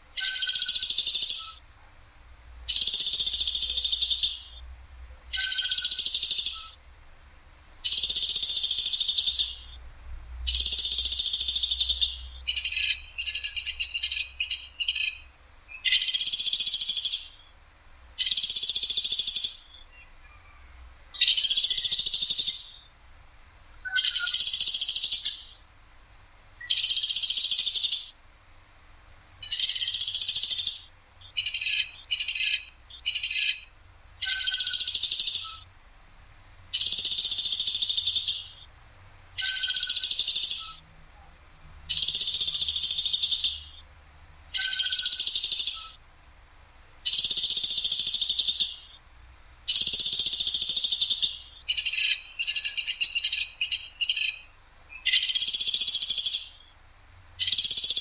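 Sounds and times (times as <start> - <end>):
bird giving harsh trilling calls: 0.2 - 1.6, 5.3 - 6.8, 10.5 - 17.4, 21.2 - 22.9, 23.8 - 25.6, 29.4 - 35.7, 36.7 - 38.7, 39.4 - 40.9, 41.9 - 43.8, 44.5 - 46.0, 47.1 - 49.0, 49.7 - 56.7.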